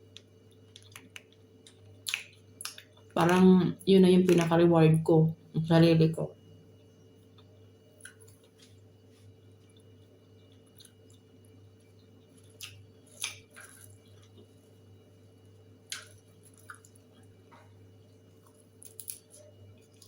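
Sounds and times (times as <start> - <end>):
person chewing food: 0.5 - 3.2, 7.3 - 20.0.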